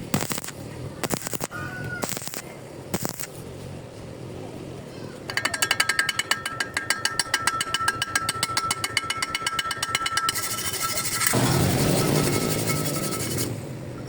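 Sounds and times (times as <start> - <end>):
steady rushing noise: 0.0 - 14.0
steady ringing tone: 5.3 - 13.4
rapid metallic tapping: 5.3 - 13.5.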